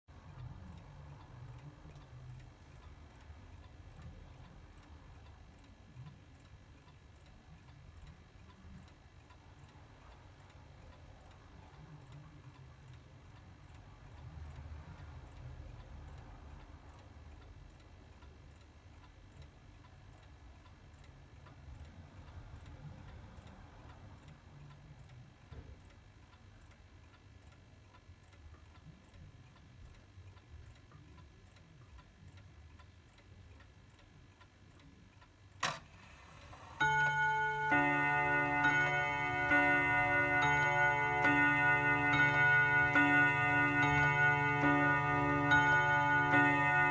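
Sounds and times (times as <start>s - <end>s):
clock works click: 35.6s - 46.9s
clock chime ringing: 36.4s - 46.9s
clock ticking: 36.4s - 46.9s.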